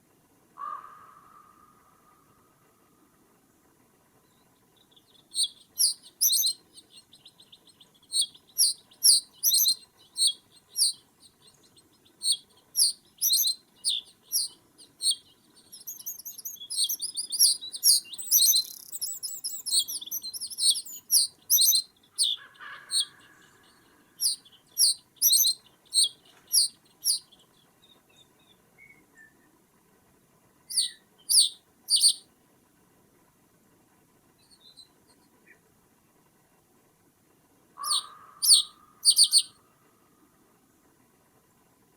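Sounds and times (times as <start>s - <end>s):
small bird calling: 0.6s - 2.6s, 4.2s - 29.4s, 30.7s - 32.2s, 37.8s - 40.2s.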